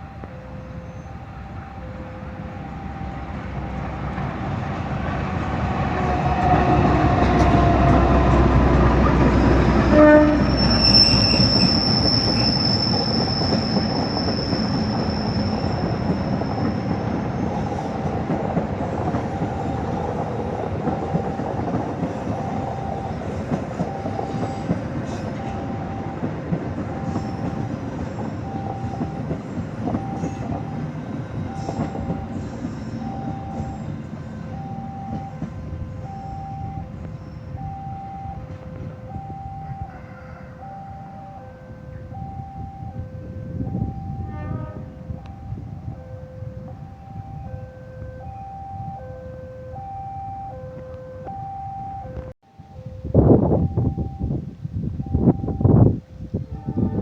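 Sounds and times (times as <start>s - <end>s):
pulsing warning tone: 0.0s - 8.4s, 9.4s - 54.4s, 55.0s - 57.0s
train rolling past: 0.0s - 49.3s
high wheel squeal: 9.5s - 18.2s.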